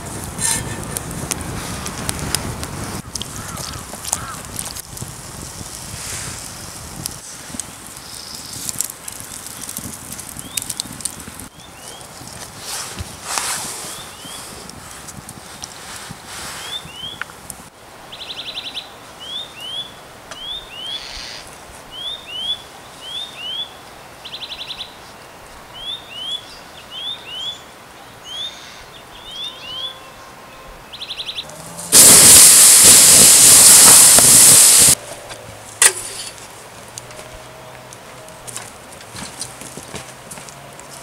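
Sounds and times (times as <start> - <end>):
loud hissing rush: 31.5 - 35.0.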